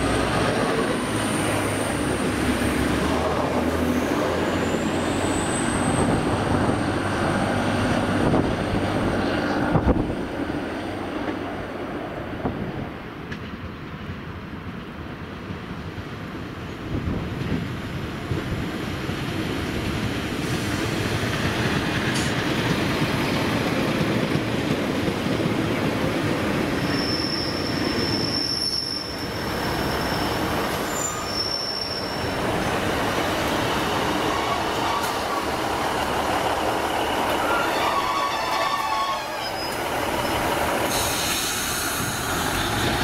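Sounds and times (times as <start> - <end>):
train wheels on track: 0.0 - 43.0
high-pitched wheel squeal: 26.8 - 32.4, 34.1 - 35.6, 37.3 - 42.7.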